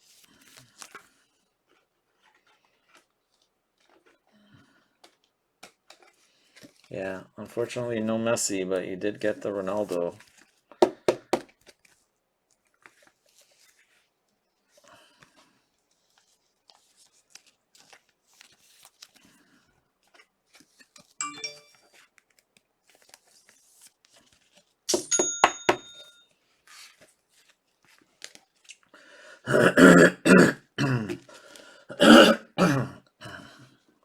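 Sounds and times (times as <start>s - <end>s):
short bright ding: 21.0s - 21.8s, 24.9s - 26.2s
person making throat sounds: 29.4s - 31.2s, 31.9s - 33.0s.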